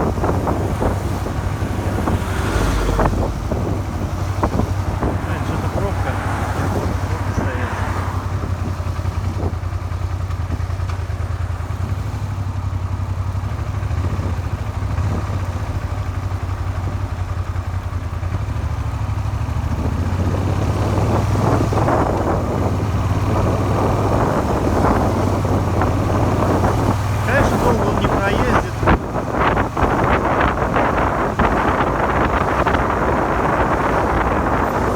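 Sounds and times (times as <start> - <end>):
wind noise: 0.0 - 10.8, 19.6 - 34.9
motorcycle engine running: 0.0 - 34.9
engine knocking: 8.3 - 26.6.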